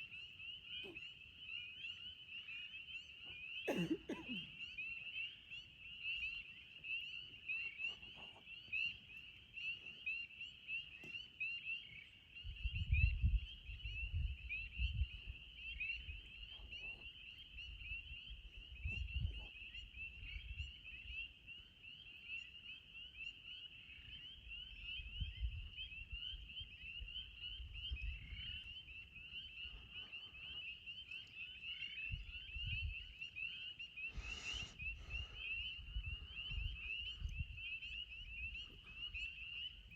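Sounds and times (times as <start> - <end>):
chorus of frogs peeping: 0.0 - 39.9.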